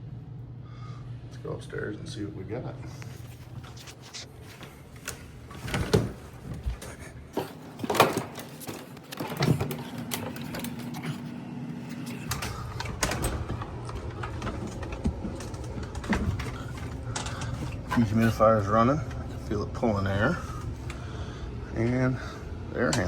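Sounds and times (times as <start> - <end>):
low hum of dehumidifier: 0.0 - 23.0
footsteps going upstairs: 12.0 - 18.2.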